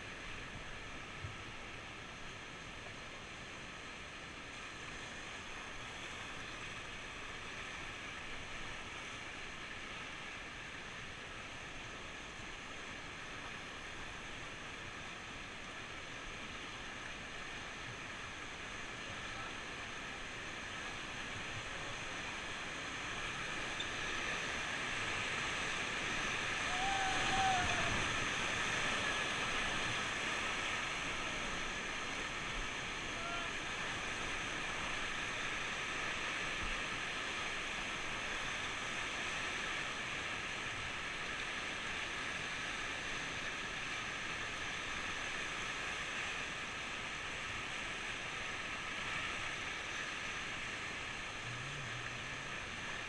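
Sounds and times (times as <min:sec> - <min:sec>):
river rushing over rapids: 0:00.0 - 0:53.0.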